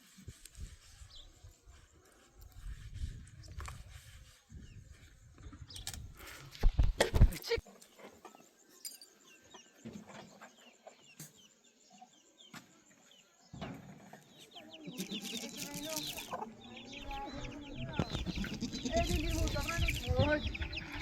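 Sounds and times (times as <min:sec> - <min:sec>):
chickens clucking: 0:13.7 - 0:21.0
chicks cheeping: 0:14.0 - 0:21.0.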